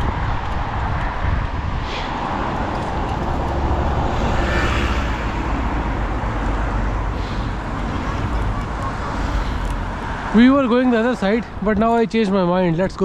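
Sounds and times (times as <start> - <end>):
wind rumble on microphone: 0.0 - 11.9
road traffic: 0.0 - 12.8
car passing by: 1.7 - 11.6.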